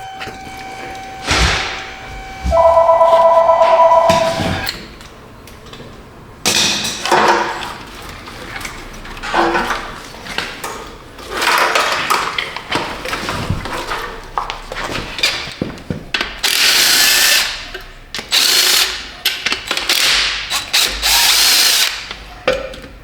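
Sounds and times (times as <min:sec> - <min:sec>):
steady two-tone whine: 0:00.0 - 0:04.7.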